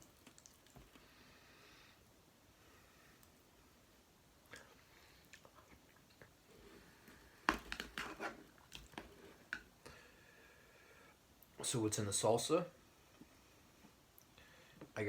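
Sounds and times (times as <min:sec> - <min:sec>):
food crackling and crunching: 0:00.0 - 0:01.1, 0:05.2 - 0:09.7.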